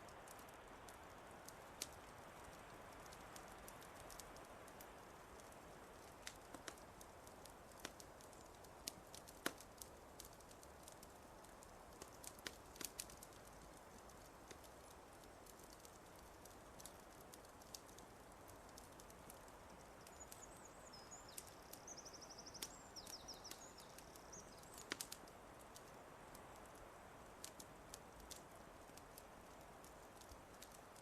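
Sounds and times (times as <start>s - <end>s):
faint steady hiss: 0.0s - 31.0s
fire crackling and popping: 0.0s - 31.0s.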